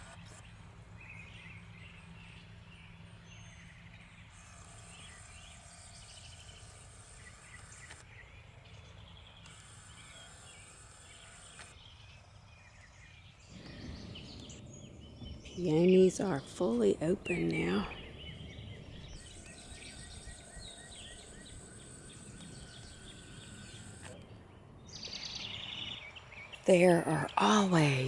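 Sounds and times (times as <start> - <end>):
low steady hum: 0.0 - 28.0
small birds chirping: 0.0 - 28.0
high insect-like buzz: 17.6 - 24.2.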